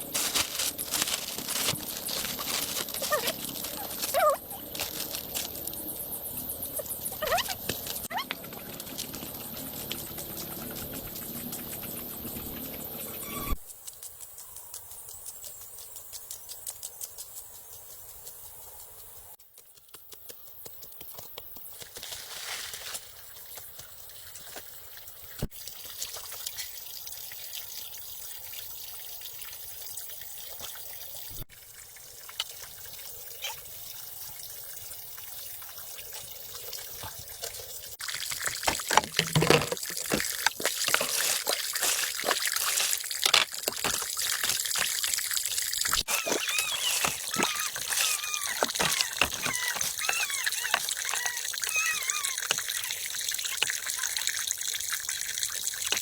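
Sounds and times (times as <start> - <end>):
water trickling and splashing: 0.0 - 13.1, 21.8 - 56.0.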